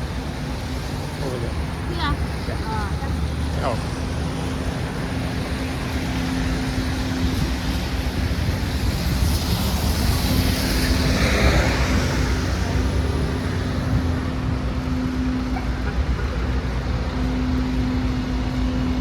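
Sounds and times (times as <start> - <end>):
traffic engines rumbling: 0.0 - 19.0
vehicle passing close by: 4.3 - 19.0.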